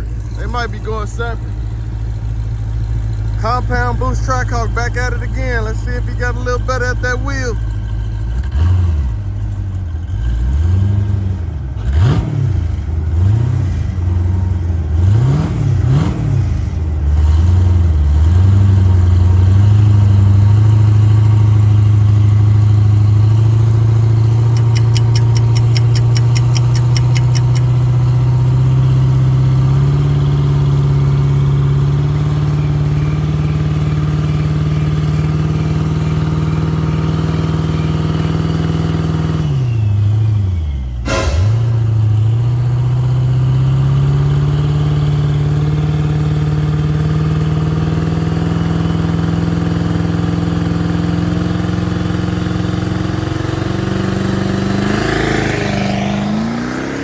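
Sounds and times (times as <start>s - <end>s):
car engine revving: 49.8s - 57.0s.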